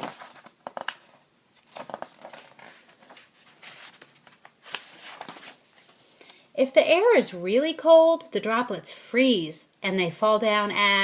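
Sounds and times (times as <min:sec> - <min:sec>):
paper pages rustling: 0:00.0 - 0:06.4.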